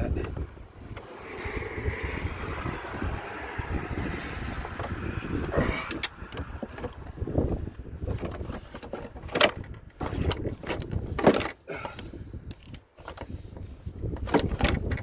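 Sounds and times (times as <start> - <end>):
car battery knocking and scraping: 3.0 - 15.0.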